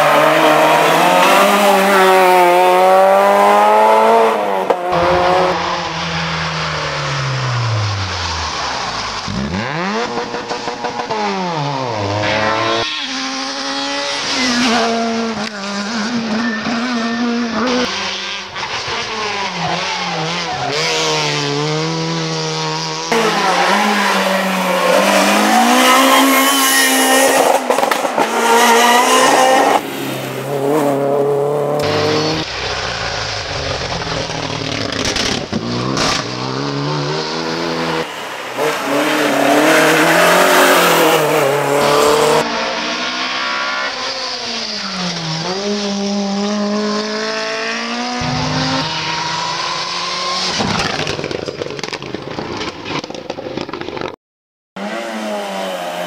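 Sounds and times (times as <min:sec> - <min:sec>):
rally car engines revving: 0:00.0 - 0:54.1, 0:54.8 - 0:56.0
tyre squeal: 0:12.2 - 0:15.0, 0:15.6 - 0:21.0.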